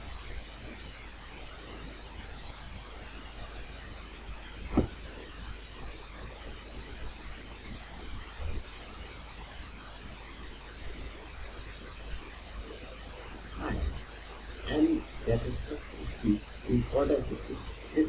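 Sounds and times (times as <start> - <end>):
microphone hiss: 0.0 - 18.0
soft thump: 4.7 - 5.0.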